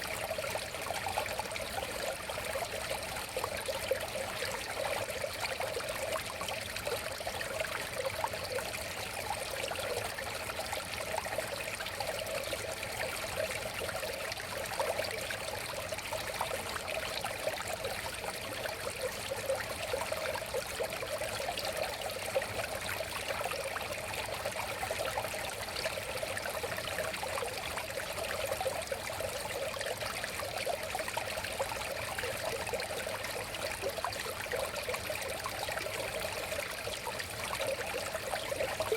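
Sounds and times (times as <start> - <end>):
river babbling over stones: 26.5 - 38.9.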